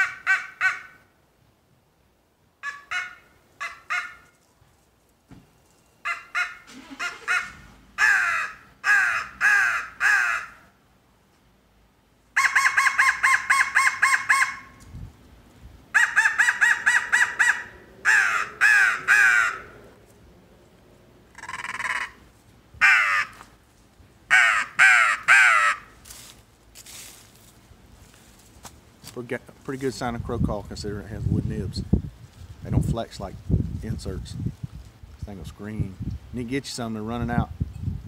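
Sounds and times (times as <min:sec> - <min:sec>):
crow call caws: 0:00.0 - 0:01.0, 0:06.0 - 0:10.7, 0:16.0 - 0:19.9, 0:21.3 - 0:22.2, 0:22.8 - 0:23.5, 0:24.3 - 0:25.9.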